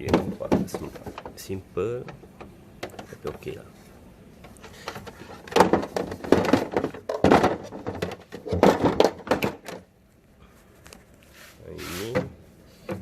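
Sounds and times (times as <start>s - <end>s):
hard objects knocking and clattering: 0.0s - 3.6s, 4.4s - 9.9s.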